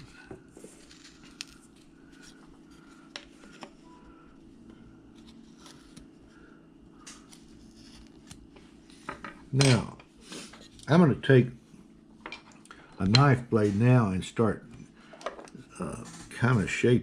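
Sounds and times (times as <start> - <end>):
steady low hum: 0.0 - 17.0
knife scraping wood: 0.7 - 2.9, 5.2 - 6.1, 7.3 - 8.4.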